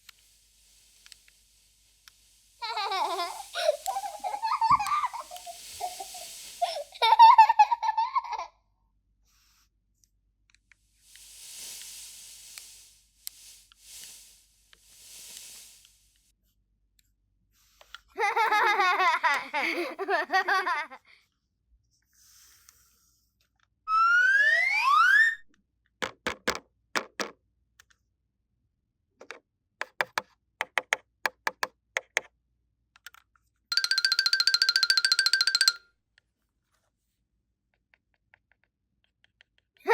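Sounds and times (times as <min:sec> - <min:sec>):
soft hissing puffs: 0:00.0 - 0:08.3, 0:09.2 - 0:09.9, 0:10.6 - 0:16.6, 0:17.6 - 0:20.8
rising slide-whistle glide: 0:02.6 - 0:07.4, 0:23.9 - 0:25.5, 0:33.7 - 0:35.8
warbling giggle-like sound: 0:02.6 - 0:08.4
bright chiming jingle: 0:33.7 - 0:35.8.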